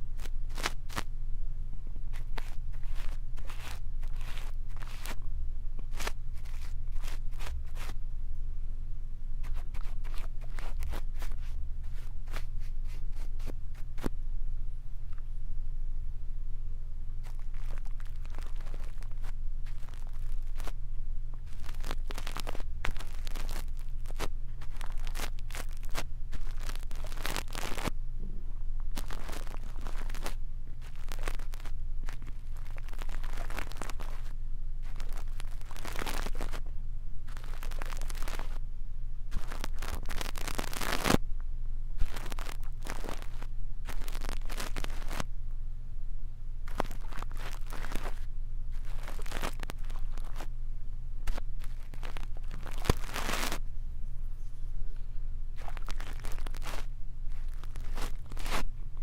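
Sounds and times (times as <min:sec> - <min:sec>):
brush bristles scratching: 0:00.0 - 0:01.1, 0:02.1 - 0:05.2, 0:05.8 - 0:08.0, 0:09.4 - 0:14.1, 0:17.2 - 0:20.8, 0:21.4 - 0:27.9, 0:28.9 - 0:36.6, 0:37.3 - 0:38.6, 0:39.3 - 0:41.2, 0:42.0 - 0:45.3, 0:46.7 - 0:50.5, 0:51.2 - 0:53.6, 0:55.6 - 0:58.7
low hum: 0:00.0 - 0:59.0.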